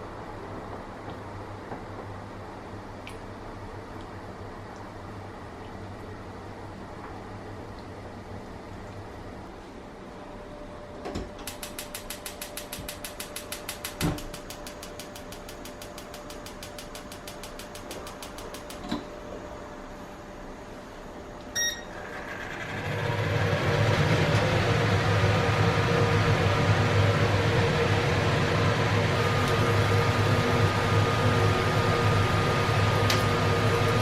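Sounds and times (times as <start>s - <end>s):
appliance electric hum: 0.0s - 34.0s
short electronic beep: 21.5s - 22.0s.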